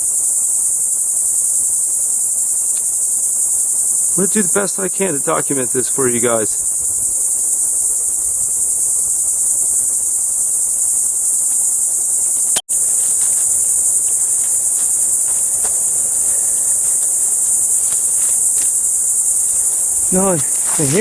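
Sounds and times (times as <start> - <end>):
insects singing: 0.0 - 21.0
faint ticks: 2.7 - 3.0, 11.4 - 20.8.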